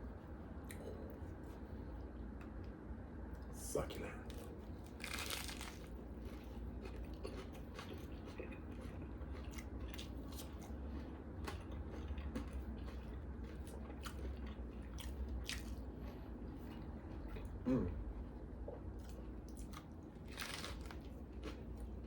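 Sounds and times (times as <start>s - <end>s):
crisp chewing: 4.2s - 17.6s, 18.2s - 22.0s
biting into sandwich crunch: 4.3s - 17.6s, 19.0s - 22.0s.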